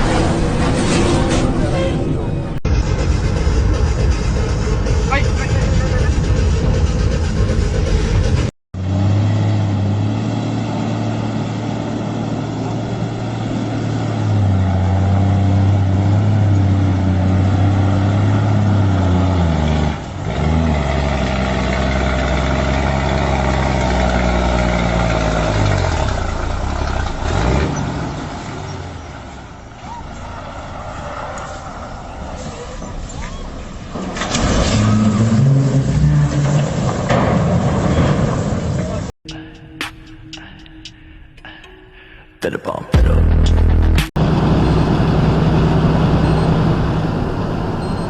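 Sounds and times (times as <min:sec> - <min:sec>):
heavy truck engine running: 0:00.0 - 0:34.2, 0:43.0 - 0:48.0.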